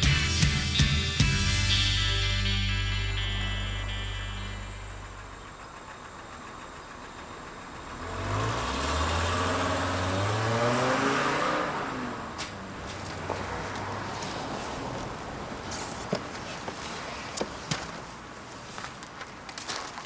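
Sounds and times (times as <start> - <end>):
vehicle engine passing by: 2.9 - 17.0.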